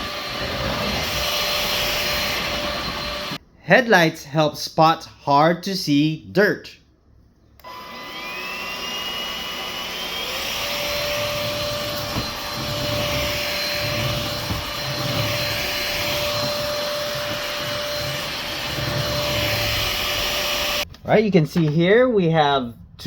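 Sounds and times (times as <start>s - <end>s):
stick vacuum motor whine: 0.0s - 3.4s, 7.6s - 20.9s.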